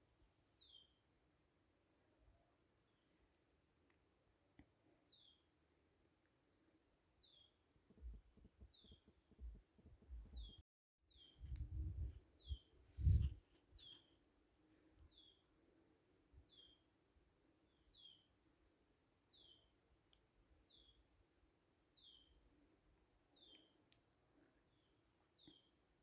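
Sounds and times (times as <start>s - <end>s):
low rumbling thumps: 11.4s - 13.4s.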